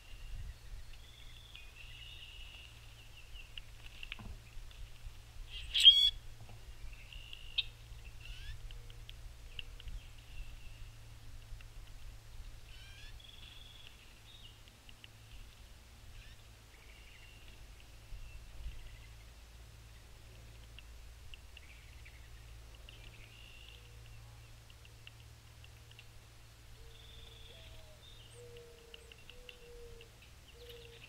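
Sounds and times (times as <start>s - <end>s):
bird chirps: 5.5s - 6.2s, 6.9s - 8.6s, 26.8s - 31.0s
harsh squeaky bird call: 5.5s - 6.2s.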